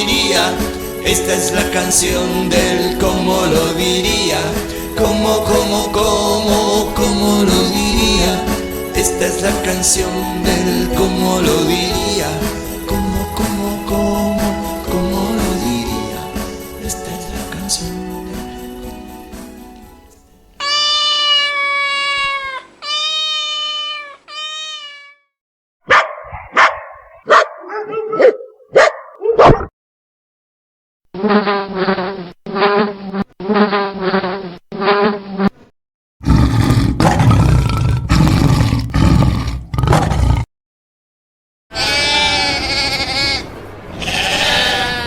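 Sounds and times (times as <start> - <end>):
cat meowing: 20.6 - 25.3, 44.0 - 45.0
dog barking: 25.9 - 29.7
bee buzzing: 31.2 - 35.5
lion roaring: 36.2 - 40.5.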